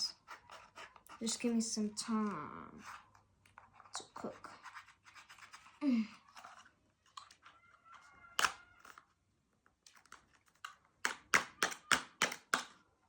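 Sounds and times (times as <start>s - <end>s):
knife scratching cardboard: 0.0s - 1.4s, 2.8s - 5.8s.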